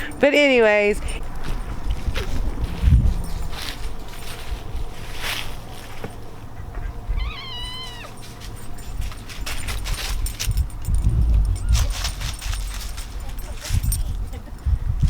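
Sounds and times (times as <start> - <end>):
low rumbling: 0.0 - 7.5, 8.6 - 15.0
cat meowing: 7.1 - 8.2.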